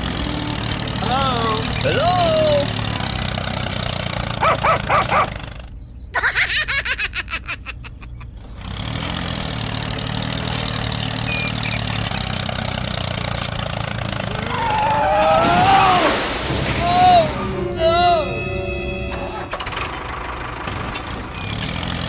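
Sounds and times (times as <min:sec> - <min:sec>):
engine starting and humming: 0:08.2 - 0:22.0.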